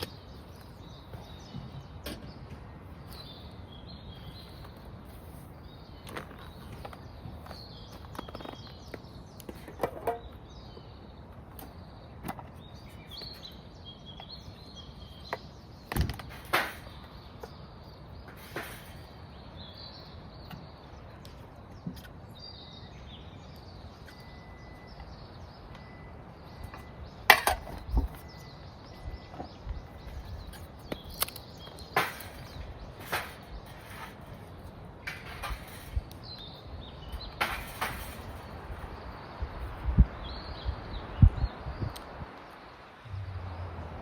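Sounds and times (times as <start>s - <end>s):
small birds chirping: 0.0s - 43.8s
knocks and clatters: 31.8s - 36.2s.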